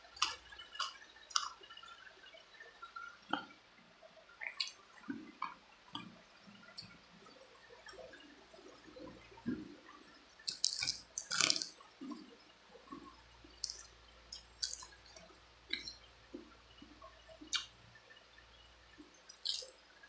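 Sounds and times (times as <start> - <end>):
wet chewing and sucking: 0.2 - 1.6, 10.5 - 16.5, 17.4 - 17.8, 19.3 - 19.8
mouth smacks: 10.5 - 12.2.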